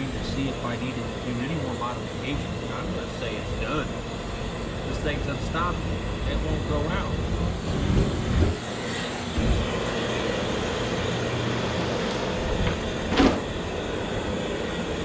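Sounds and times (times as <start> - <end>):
blower: 0.0 - 15.0
gas flare flame rushing: 0.0 - 15.0
low thumps: 3.9 - 8.7, 9.3 - 9.8.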